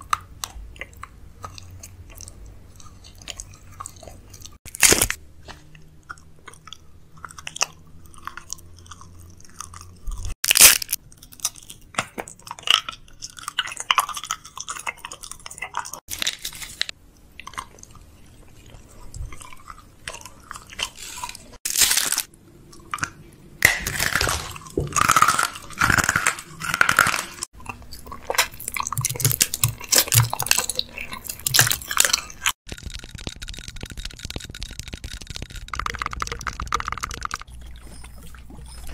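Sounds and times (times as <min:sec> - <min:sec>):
chewing and crunching sweets: 0:00.0 - 0:38.9
foil wrapper crinkling: 0:10.4 - 0:11.0, 0:21.7 - 0:22.3, 0:31.3 - 0:37.4.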